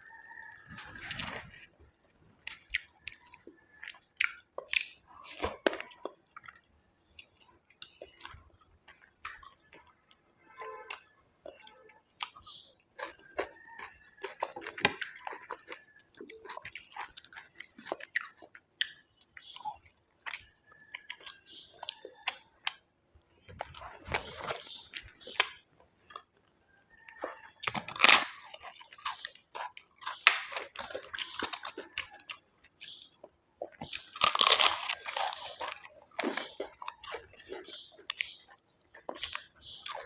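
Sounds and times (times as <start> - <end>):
person chewing food: 0.0 - 40.0.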